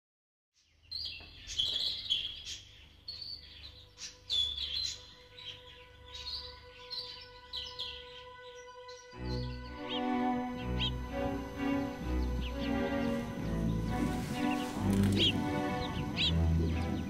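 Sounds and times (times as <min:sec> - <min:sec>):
small birds chirping: 0:00.6 - 0:17.0
held musical note: 0:05.2 - 0:17.0.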